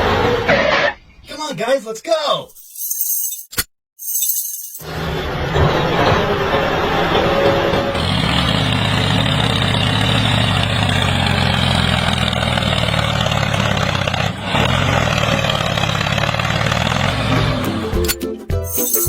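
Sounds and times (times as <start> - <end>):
vehicle engine running: 4.9 - 18.2.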